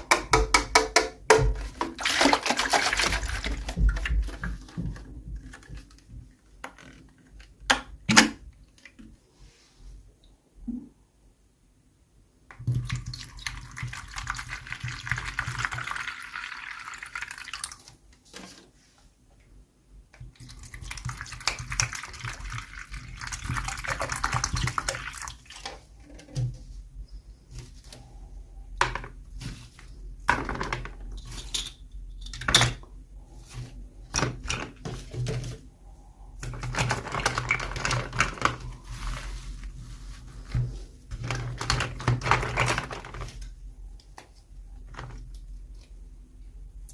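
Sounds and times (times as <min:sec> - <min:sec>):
plastic packaging crinkling: 0:36.5 - 0:40.4.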